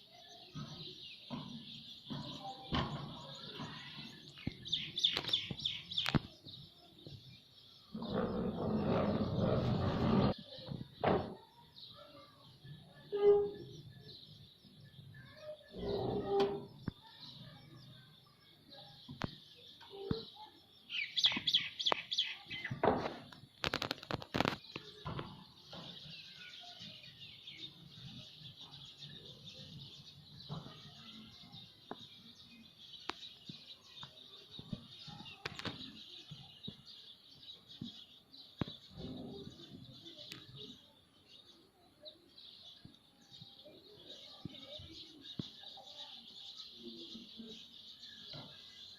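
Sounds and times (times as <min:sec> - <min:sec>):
sharp clicking noises: 0:21.2 - 0:22.3, 0:23.0 - 0:25.9.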